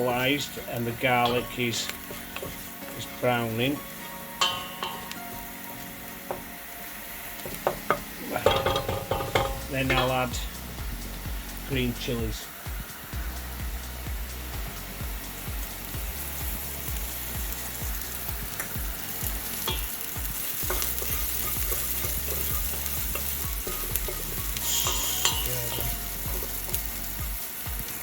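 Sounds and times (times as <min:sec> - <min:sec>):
utensil scraping a pan: 0:00.0 - 0:05.4, 0:07.4 - 0:10.5, 0:18.5 - 0:27.2
onions sizzling in a pan: 0:00.0 - 0:28.0.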